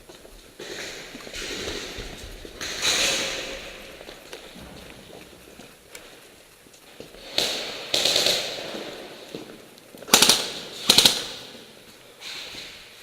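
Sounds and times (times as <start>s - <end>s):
airsoft gun bursts: 7.2s - 9.0s, 10.1s - 11.6s.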